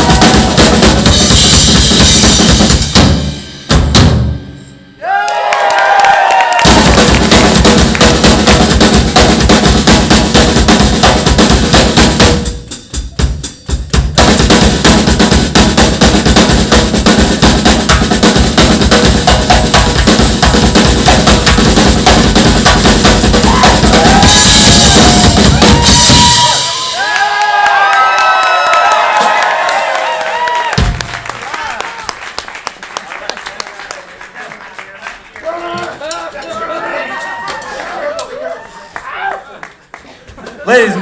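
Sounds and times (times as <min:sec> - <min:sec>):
drum kit solo: 0:00.0 - 0:04.9, 0:06.6 - 0:27.6, 0:30.7 - 0:31.4.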